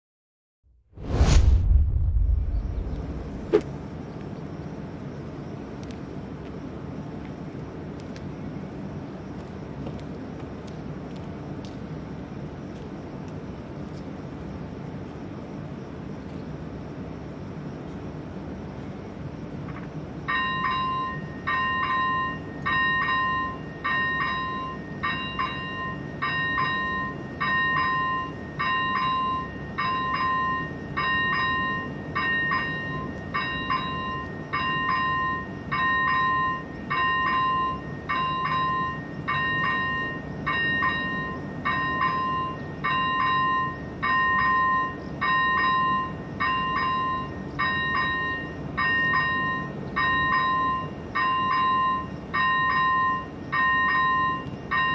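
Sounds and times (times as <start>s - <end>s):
low rumble: 0.7s - 3.8s
level crossing bell ringing: 20.3s - 54.9s.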